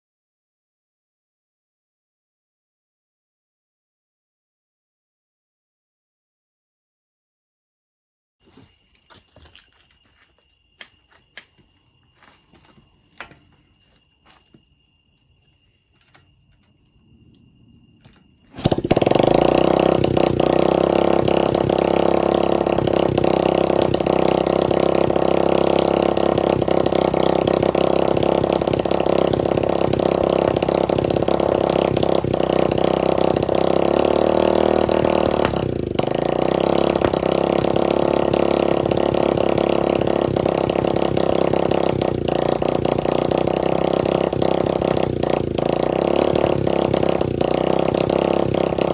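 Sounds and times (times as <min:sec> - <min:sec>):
dirt bike engine running loudly: 0:18.5 - 0:48.9.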